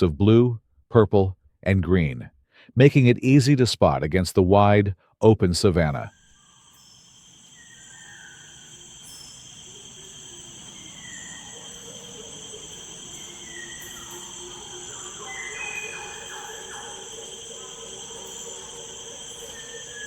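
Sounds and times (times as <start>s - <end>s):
insects chirping steady buzz: 6.0s - 20.0s
faint short insect calls: 6.1s - 20.0s.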